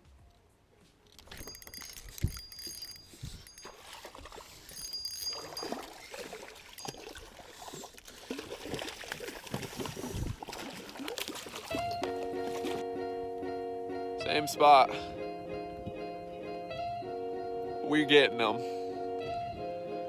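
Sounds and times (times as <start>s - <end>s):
fishing gear clicking and rattling: 1.0s - 8.2s
water splashing and lapping: 1.2s - 12.8s.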